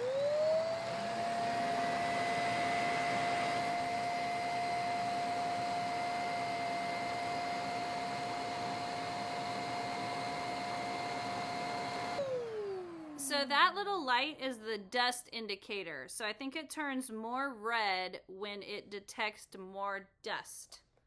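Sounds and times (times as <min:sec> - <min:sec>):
vacuum cleaner motor whining: 0:00.0 - 0:13.4.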